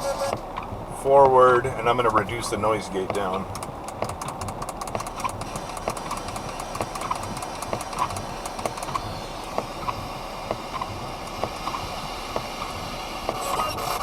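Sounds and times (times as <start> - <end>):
chopped radio blips and static: 0.0 - 0.4
rapid clicks: 0.2 - 14.0.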